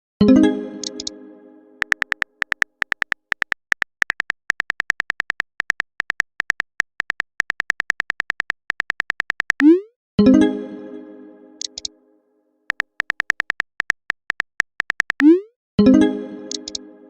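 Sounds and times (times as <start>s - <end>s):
keyboard typing clicks: 0.8s - 1.1s, 1.8s - 9.8s, 11.6s - 11.9s, 12.7s - 15.4s, 16.5s - 16.8s.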